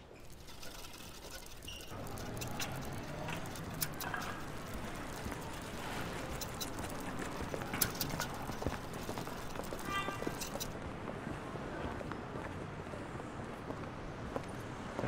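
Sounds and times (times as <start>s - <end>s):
wheelchair wheels rolling on pavement: 0.0s - 11.4s
steady outdoor hum: 0.0s - 15.0s.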